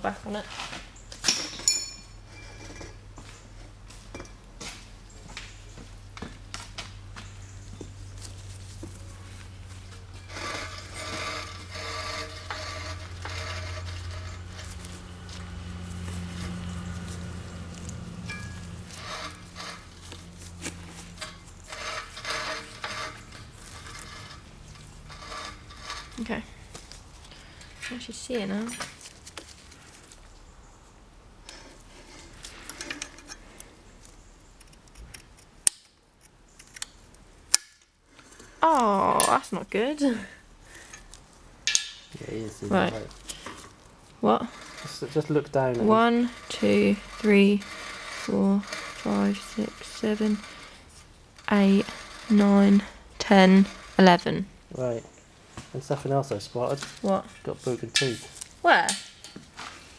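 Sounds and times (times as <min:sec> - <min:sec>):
mechanical rubbing and whirring: 0:10.2 - 0:26.7, 0:44.2 - 0:54.5
sharp clicks of metal parts: 0:32.4 - 0:39.4, 0:40.9 - 0:42.1.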